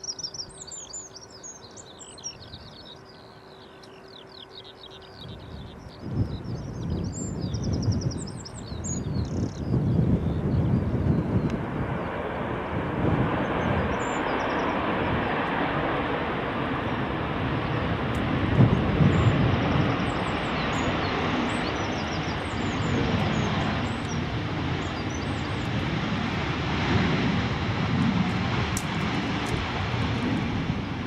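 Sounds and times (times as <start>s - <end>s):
faint birds chirping: 0.0s - 12.2s, 13.3s - 15.4s, 18.7s - 25.8s
jet engine rushing: 5.5s - 31.0s.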